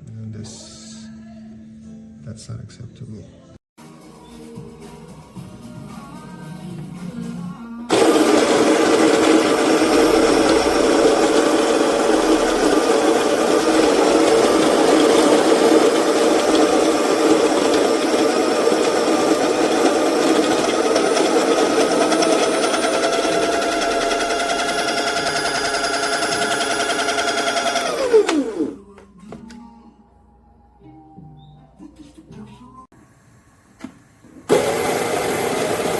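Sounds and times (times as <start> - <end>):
electric coffee grinder grinding: 7.9 - 28.8, 34.5 - 35.9.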